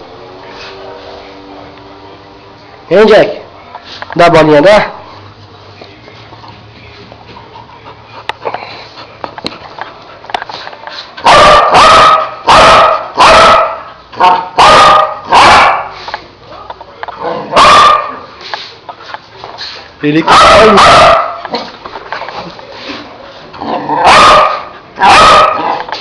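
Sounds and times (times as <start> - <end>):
dog barking: 11.2 - 16.0, 17.5 - 18.3, 20.2 - 21.7, 24.0 - 25.8.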